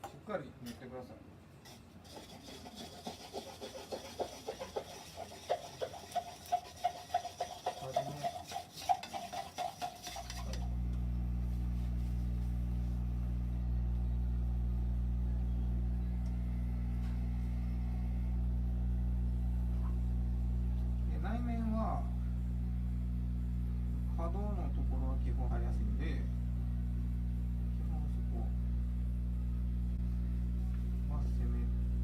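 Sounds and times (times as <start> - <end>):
spatula scraping paste in bowl: 1.6 - 10.6
mixer motor humming: 2.1 - 32.0.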